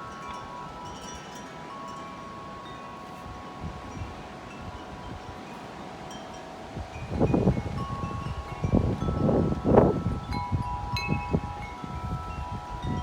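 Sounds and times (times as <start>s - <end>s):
tubular wind chimes ringing: 0.0s - 13.0s
wind buffeting microphone: 6.6s - 13.0s.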